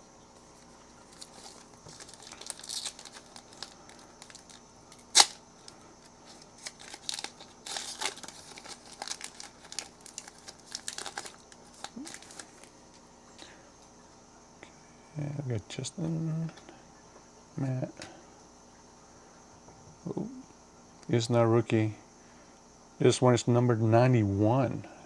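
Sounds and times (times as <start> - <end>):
wrapper crinkling: 0.5 - 13.0
foil card pack tearing: 0.6 - 12.8.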